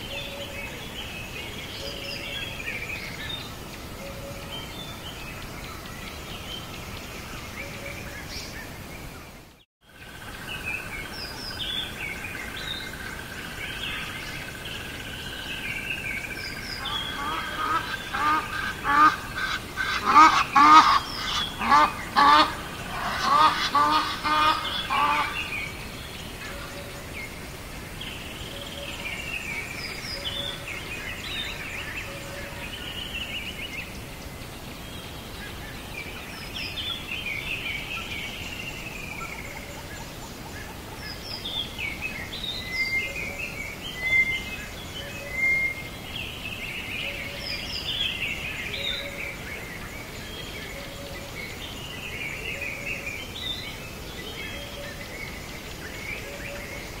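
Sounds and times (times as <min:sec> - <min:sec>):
small birds chirping: 0:00.0 - 0:57.0
steady hiss: 0:00.0 - 0:57.0
large bird repeated loud calls: 0:16.8 - 0:25.7.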